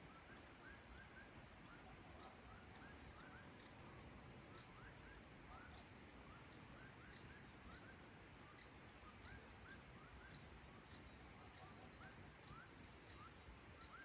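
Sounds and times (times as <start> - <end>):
low steady hiss: 0.0 - 14.0
small animals chirping: 0.1 - 14.0.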